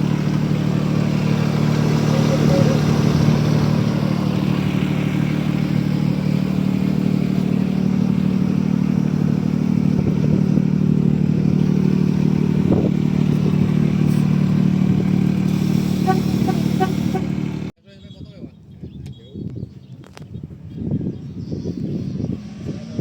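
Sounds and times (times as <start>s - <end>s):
engine running steadily: 0.0s - 17.7s.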